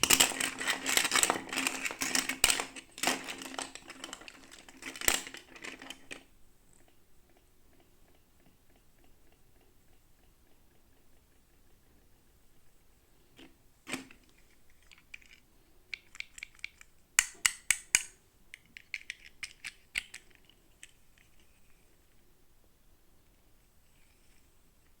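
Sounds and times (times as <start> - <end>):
plastic packaging clicks and crinkles: 0.0 - 6.3.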